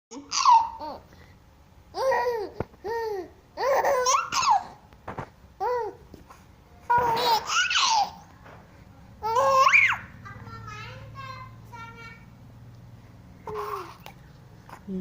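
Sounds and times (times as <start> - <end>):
baby laughing and squealing: 0.2 - 1.0, 2.0 - 4.8, 6.9 - 8.2, 9.2 - 10.1, 13.5 - 14.1.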